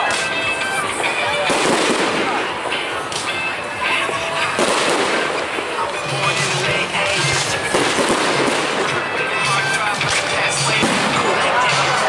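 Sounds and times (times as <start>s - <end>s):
crowd noise: 0.0s - 12.0s
fireworks crackling pops: 0.0s - 12.0s
fireworks bang: 1.4s - 3.3s, 4.1s - 5.8s, 7.1s - 9.0s, 10.0s - 11.8s.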